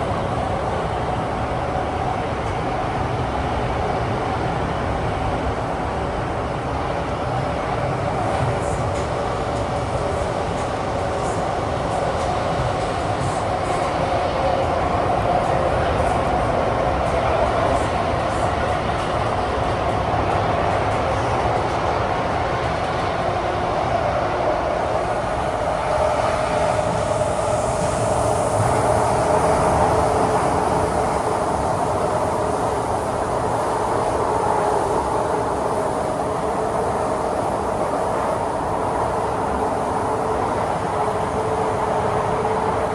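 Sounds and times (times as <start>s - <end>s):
metro car roaring in tunnel: 0.0s - 42.9s
steady whine: 24.4s - 42.9s.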